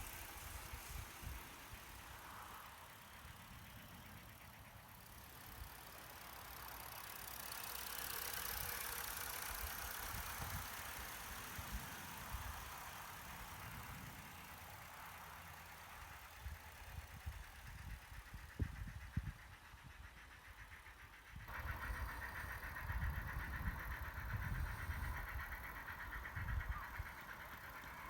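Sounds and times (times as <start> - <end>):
model locomotive hissing steam: 0.0 - 28.0
wind buffeting microphone: 16.4 - 20.0, 21.4 - 27.8.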